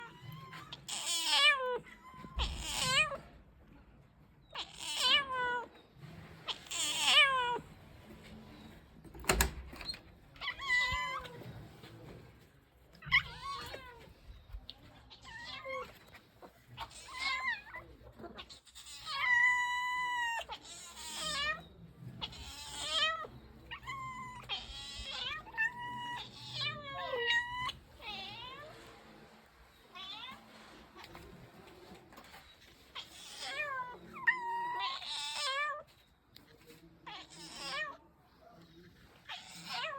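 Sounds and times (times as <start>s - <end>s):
cats meowing: 0.0s - 3.4s, 4.5s - 5.8s, 6.4s - 7.8s, 10.3s - 11.5s, 12.9s - 28.9s, 29.9s - 31.5s, 32.6s - 36.0s, 37.0s - 38.1s, 39.2s - 39.9s.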